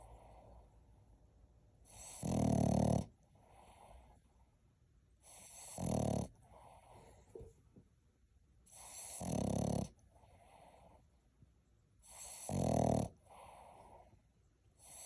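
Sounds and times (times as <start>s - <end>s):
puppy snoring: 1.8s - 4.2s, 5.2s - 7.5s, 8.7s - 11.1s, 12.0s - 14.2s, 14.8s - 15.0s
soft breathing: 6.4s - 7.6s.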